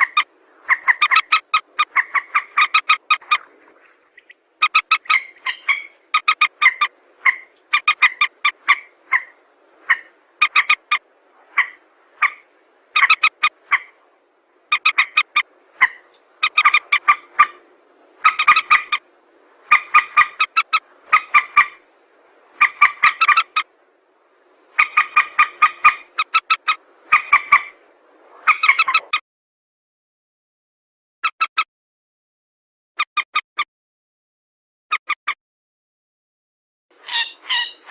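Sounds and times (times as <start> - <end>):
rail bird calls: 0.0 - 14.0, 14.6 - 21.9, 22.5 - 23.8, 24.7 - 27.8, 28.4 - 29.2, 37.0 - 37.9.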